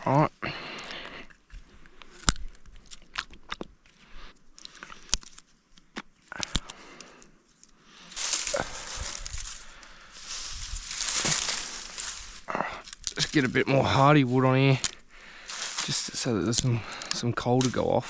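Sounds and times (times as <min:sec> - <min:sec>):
rustling of twigs: 0:03.8 - 0:18.0
sticks snapping: 0:04.6 - 0:07.2, 0:08.2 - 0:13.3, 0:14.8 - 0:18.0.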